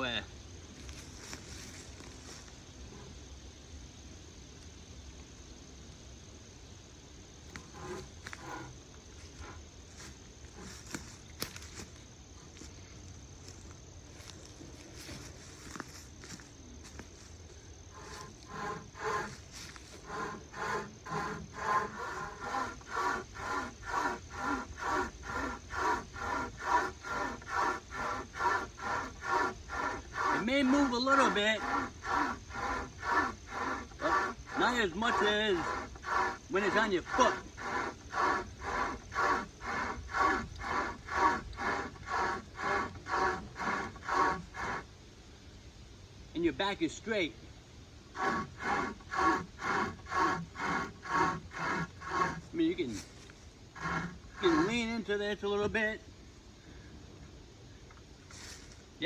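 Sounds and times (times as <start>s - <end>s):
hand chainsaw sawing wood: 7.5s - 11.9s, 17.9s - 44.9s, 48.1s - 55.2s.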